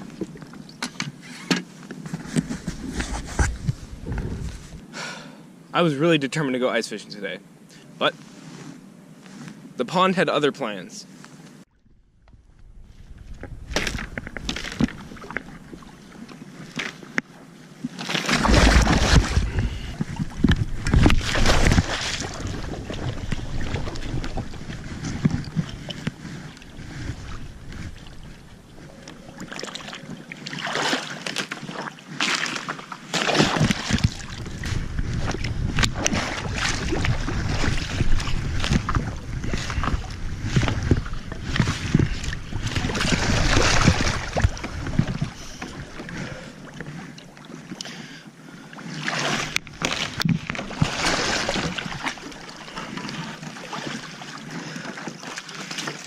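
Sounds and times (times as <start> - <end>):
water sloshing and splashing: 0.0 - 4.8, 11.7 - 56.0
wind on microphone: 2.2 - 4.8, 11.8 - 15.9, 18.4 - 30.4, 33.4 - 46.9.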